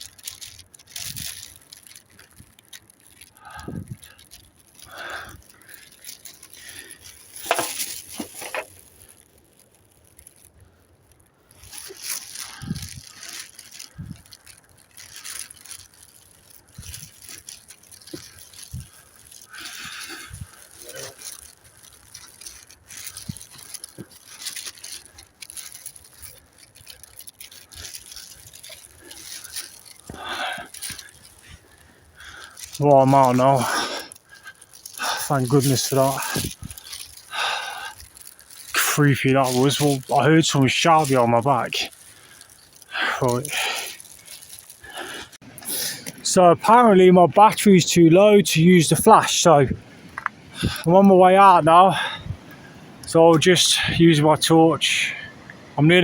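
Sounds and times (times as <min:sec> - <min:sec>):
footsteps in leaf litter: 0:00.0 - 0:52.2
footsteps on woodland floor: 0:07.4 - 0:08.8.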